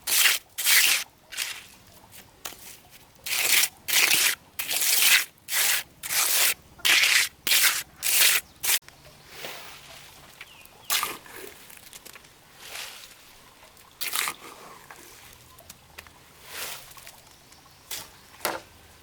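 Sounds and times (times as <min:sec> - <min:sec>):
hand tool scraping soil: 0:00.0 - 0:08.8.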